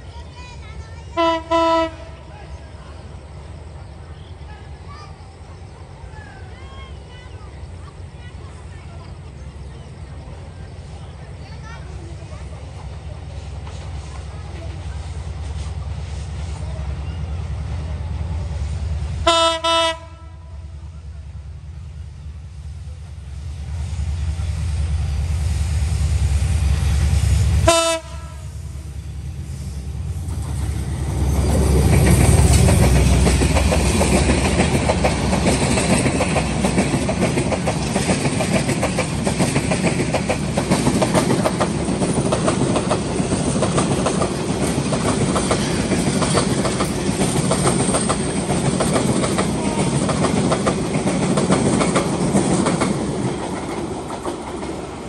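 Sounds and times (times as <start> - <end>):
diesel locomotive rumble: 0.0 - 55.0
wheels clacking over rail joints: 30.0 - 55.0.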